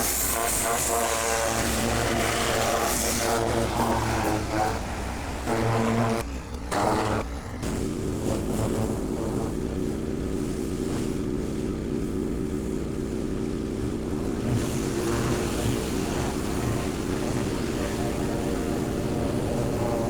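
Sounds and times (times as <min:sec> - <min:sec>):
pressure washer engine running: 0:00.0 - 0:20.0.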